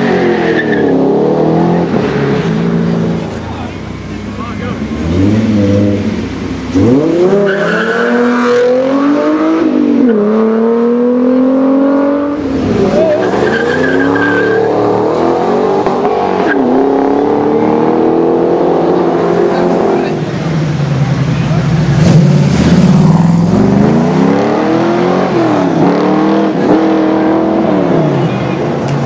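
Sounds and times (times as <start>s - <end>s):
car engine accelerating: 0.0s - 29.0s
tyre squeal: 13.0s - 15.0s.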